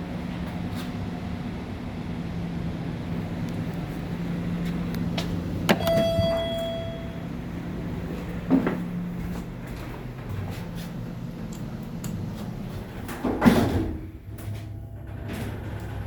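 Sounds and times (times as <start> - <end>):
elevator humming: 0.0 - 16.0
elevator arrival chime: 5.7 - 9.1, 14.7 - 16.0.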